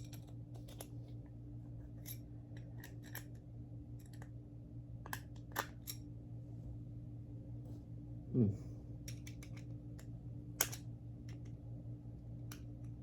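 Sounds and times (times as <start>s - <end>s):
steady low hum: 0.0s - 13.0s
tools clicking and tapping: 9.0s - 11.6s.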